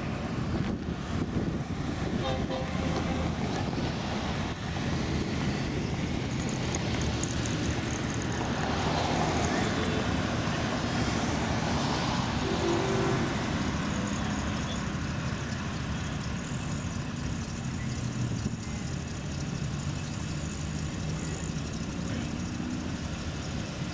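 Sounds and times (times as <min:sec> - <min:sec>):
car engines driving past: 0:00.0 - 0:23.9.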